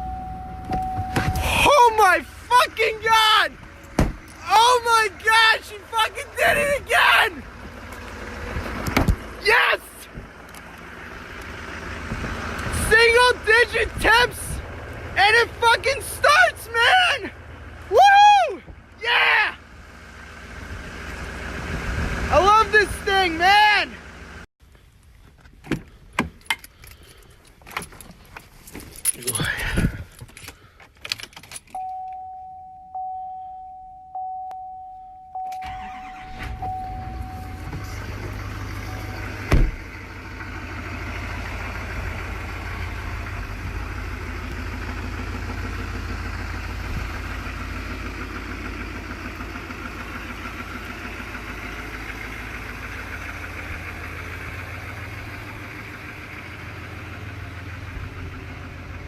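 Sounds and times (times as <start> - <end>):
diesel engine starting and idling: 0.0 - 25.0, 25.8 - 59.0
loud thump: 3.9 - 4.3, 39.4 - 39.8
warning chime dinging: 31.8 - 35.9, 36.6 - 38.0.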